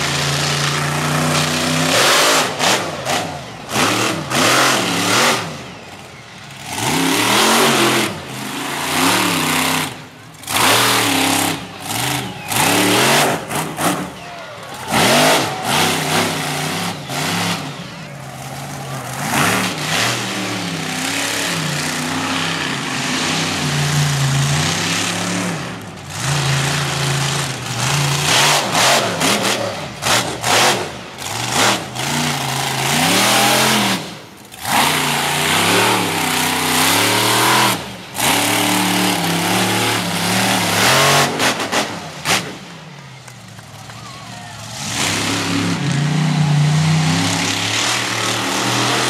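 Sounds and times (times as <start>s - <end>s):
monster truck engine revving: 0.0s - 49.0s.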